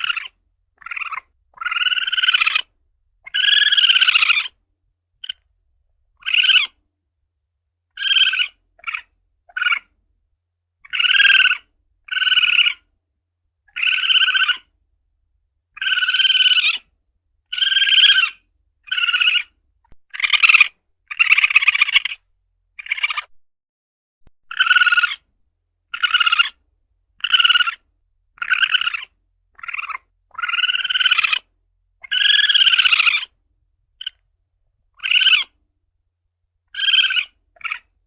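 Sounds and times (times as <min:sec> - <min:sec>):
civet calling: 0:00.0 - 0:04.6, 0:05.2 - 0:05.5, 0:06.2 - 0:06.8, 0:07.9 - 0:09.9, 0:10.8 - 0:12.9, 0:13.7 - 0:14.7, 0:15.7 - 0:16.9, 0:17.5 - 0:23.3, 0:24.5 - 0:25.3, 0:25.9 - 0:26.6, 0:27.2 - 0:33.4, 0:34.0 - 0:34.2, 0:34.9 - 0:35.6, 0:36.7 - 0:38.0.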